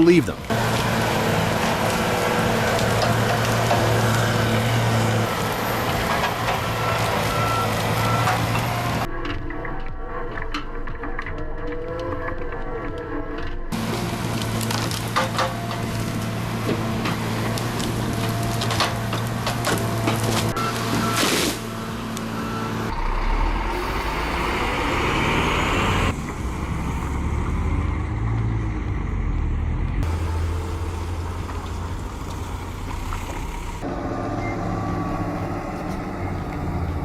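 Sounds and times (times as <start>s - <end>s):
diesel truck engines running: 0.0s - 9.1s, 13.7s - 37.0s.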